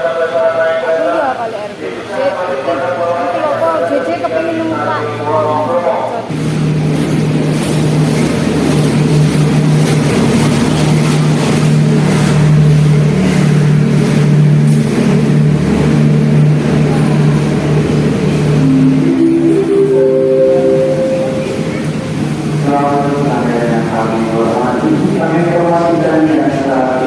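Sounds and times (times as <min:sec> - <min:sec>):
diesel locomotive passing: 0:00.0 - 0:27.0
rising tones: 0:18.3 - 0:22.6.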